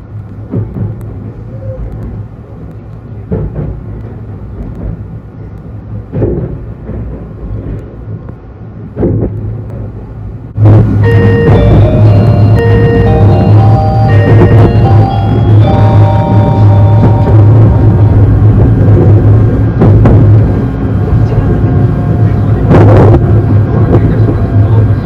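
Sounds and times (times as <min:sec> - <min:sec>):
train running low rumble: 0:00.0 - 0:25.0
short knocks of train: 0:06.0 - 0:08.2, 0:08.8 - 0:10.1, 0:10.8 - 0:20.7, 0:22.6 - 0:24.8
background music: 0:10.6 - 0:19.3.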